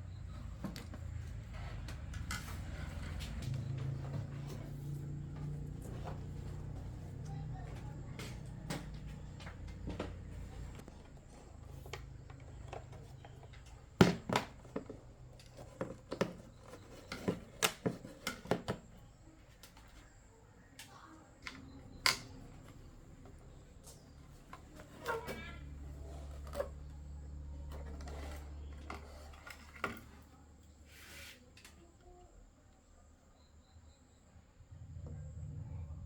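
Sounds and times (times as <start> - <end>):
low hum: 34.5 - 36.0.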